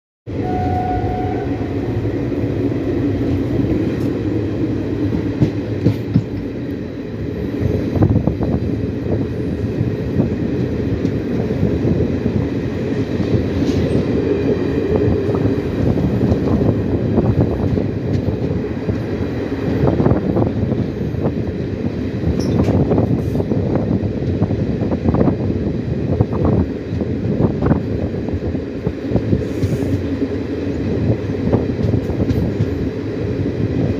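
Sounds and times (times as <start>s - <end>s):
train rumbling on track: 0.3s - 33.9s.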